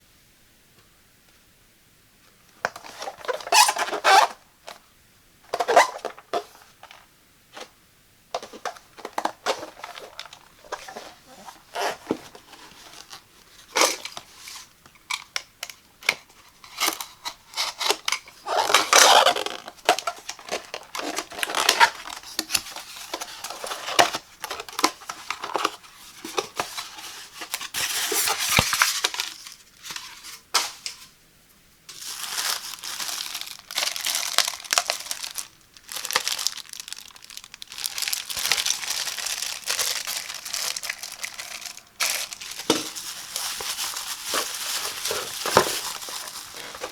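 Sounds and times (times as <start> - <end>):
packaging crinkling and rustling: 2.6 - 4.8, 5.5 - 31.1, 31.9 - 46.9
packaging tearing: 16.7 - 30.1, 31.9 - 46.9
packaging taps and clicks: 37.7 - 46.9.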